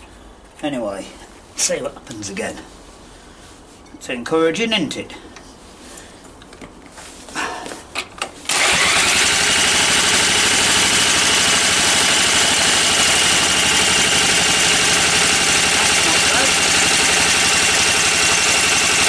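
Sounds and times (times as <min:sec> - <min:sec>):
engine turning over: 0:08.5 - 0:19.0.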